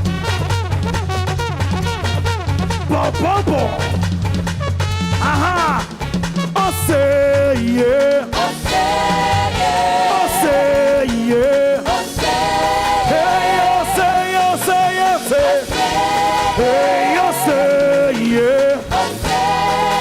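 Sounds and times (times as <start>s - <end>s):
band playing: 0.0s - 20.0s
choir singing gospel song: 7.2s - 20.0s.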